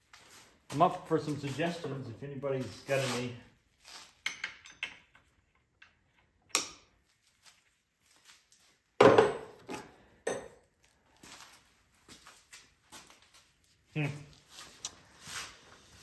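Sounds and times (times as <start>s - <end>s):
tools knocking: 9.0s - 10.6s.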